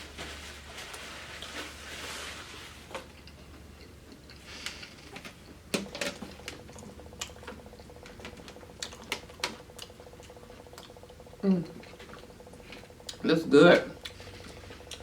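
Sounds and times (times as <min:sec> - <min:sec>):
faint steady buzz: 0:03.6 - 0:15.0
person chewing crunchy food: 0:06.2 - 0:13.2, 0:13.9 - 0:15.0.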